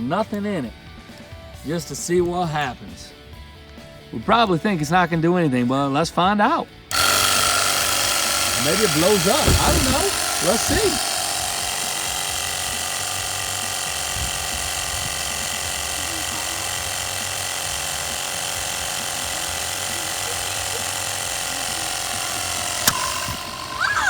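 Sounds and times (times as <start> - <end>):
air pump running: 6.9 - 24.0.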